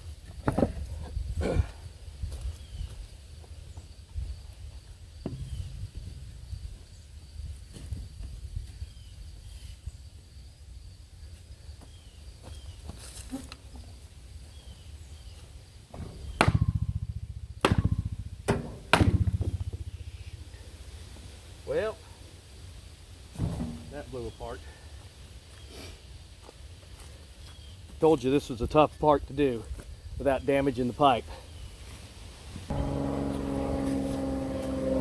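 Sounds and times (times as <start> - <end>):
pipe fitting being pounded: 5.3 - 6.7, 16.0 - 20.0.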